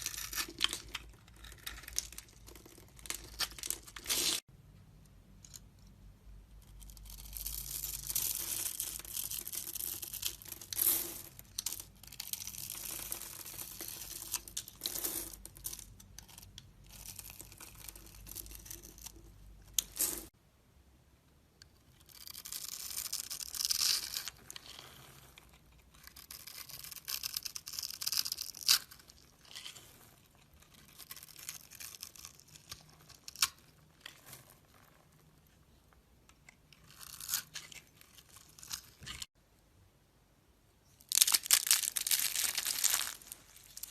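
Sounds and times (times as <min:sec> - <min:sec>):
blade scraping soap: 0:00.0 - 0:04.4, 0:22.0 - 0:34.4.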